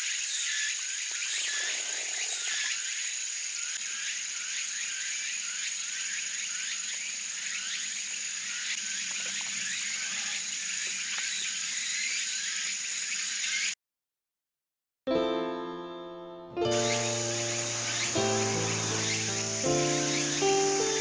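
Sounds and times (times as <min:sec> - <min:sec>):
frogs chirping: 0:00.0 - 0:13.7, 0:16.8 - 0:21.0
high-pitched trill: 0:16.7 - 0:21.0.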